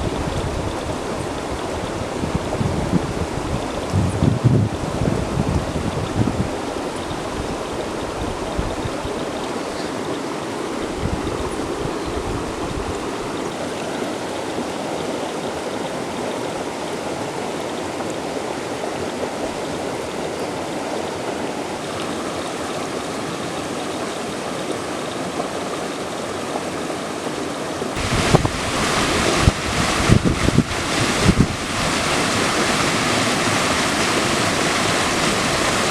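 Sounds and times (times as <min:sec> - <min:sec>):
wind buffeting microphone: 0:00.0 - 0:09.6, 0:10.8 - 0:13.5, 0:28.0 - 0:35.9
running water: 0:00.0 - 0:35.9.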